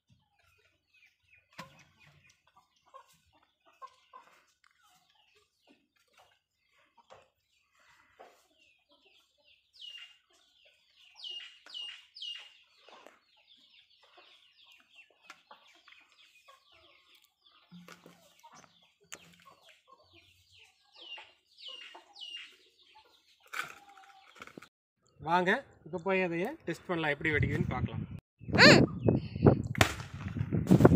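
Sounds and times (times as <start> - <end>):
birds calling: 0.2 - 24.7.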